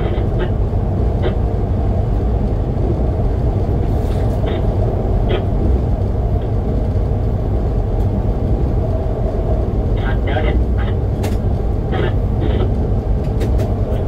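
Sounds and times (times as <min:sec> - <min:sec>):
train rumbling along track: 0:00.0 - 0:14.0.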